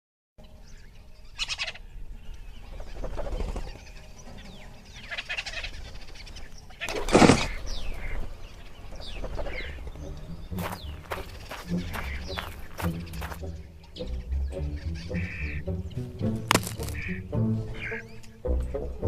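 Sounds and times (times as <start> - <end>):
fowl calling: 9.3 - 13.7, 14.6 - 18.5.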